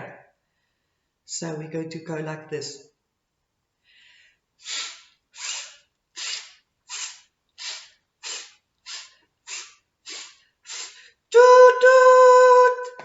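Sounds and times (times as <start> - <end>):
person making breathy puffs: 4.6 - 11.2.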